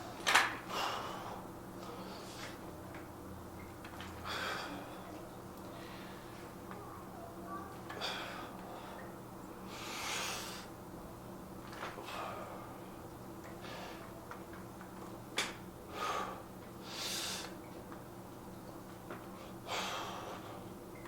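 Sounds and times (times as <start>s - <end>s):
man breathing hard: 0.7s - 2.5s, 4.2s - 4.9s, 15.9s - 17.5s, 19.6s - 20.6s.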